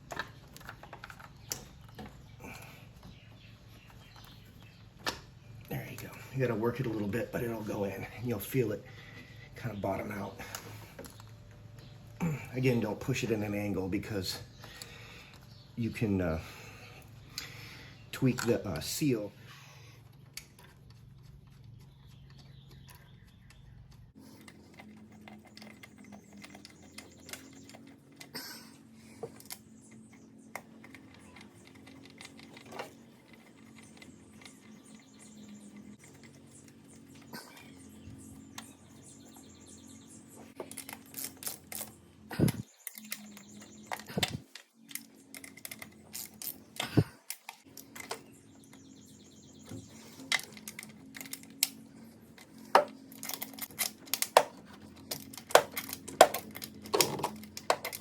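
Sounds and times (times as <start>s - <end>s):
plastic and metal parts clicking: 0.0s - 2.4s, 20.2s - 39.5s, 40.5s - 49.0s, 49.6s - 58.0s.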